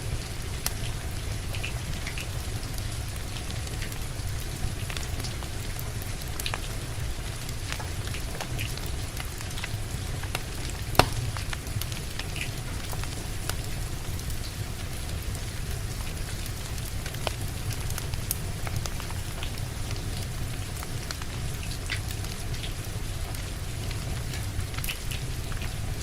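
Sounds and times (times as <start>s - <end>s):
wood fire crackling: 0.2s - 26.0s
rain hissing: 8.0s - 18.6s.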